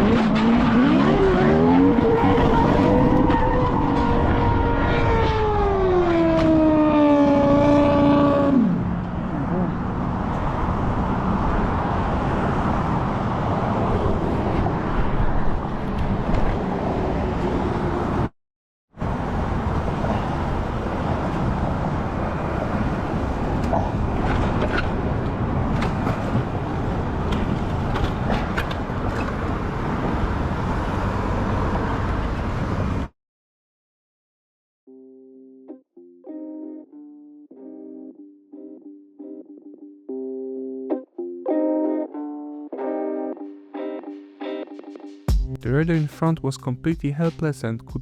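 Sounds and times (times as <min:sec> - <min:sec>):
road and traffic noise: 0:00.0 - 0:18.3, 0:19.0 - 0:33.1.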